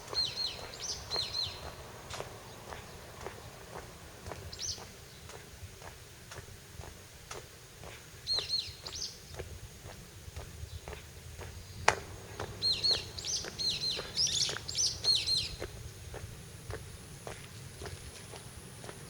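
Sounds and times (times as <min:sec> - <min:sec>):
small bird chirping: 0:00.0 - 0:05.5, 0:08.2 - 0:10.0, 0:10.6 - 0:18.4
footsteps walking: 0:00.0 - 0:19.0.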